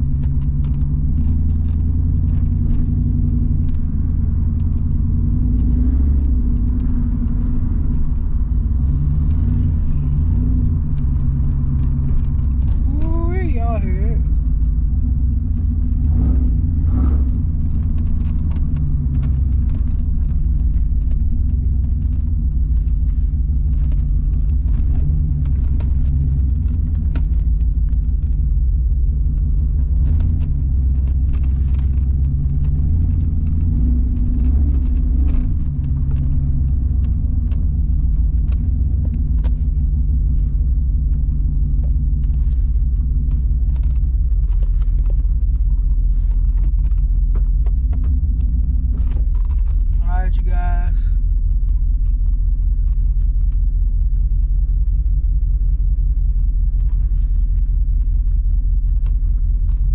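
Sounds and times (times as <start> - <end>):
car engine rumbling from inside: 0.0 - 59.9.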